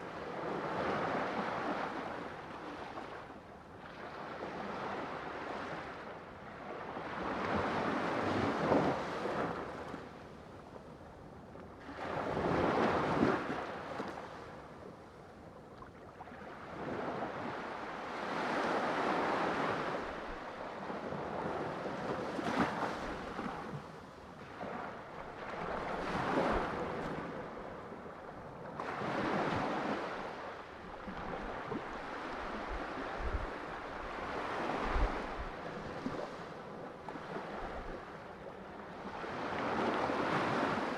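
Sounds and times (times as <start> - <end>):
sea waves breaking: 16.6 - 38.2
wind noise: 31.1 - 36.3.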